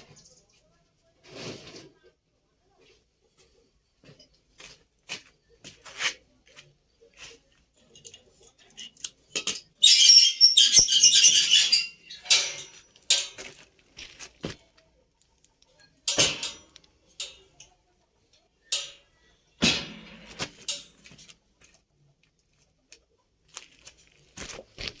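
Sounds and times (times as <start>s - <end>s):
harsh metalwork noise: 9.8s - 12.8s.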